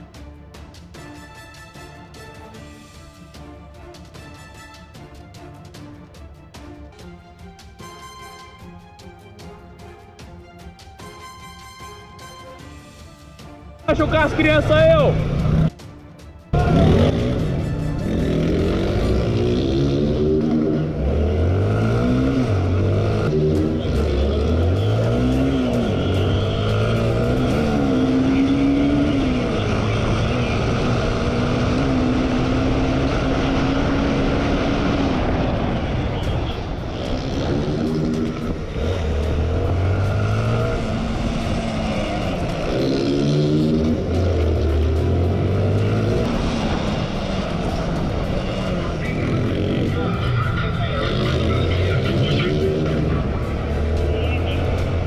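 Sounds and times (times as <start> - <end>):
motorcycle engine accelerating: 15.1 - 15.8, 16.6 - 55.0.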